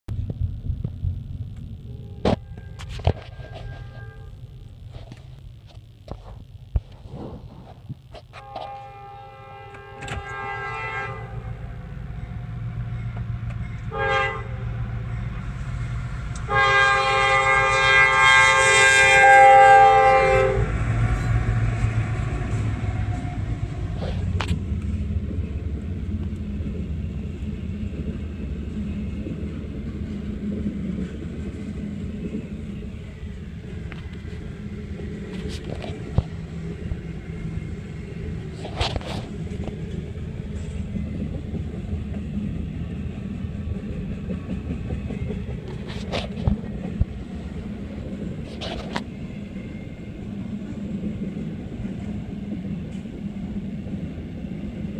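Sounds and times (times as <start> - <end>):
train air horn blast: 1.9 - 4.4, 8.4 - 11.8, 13.9 - 14.9, 16.4 - 24.5
train rumbling past: 8.4 - 54.9.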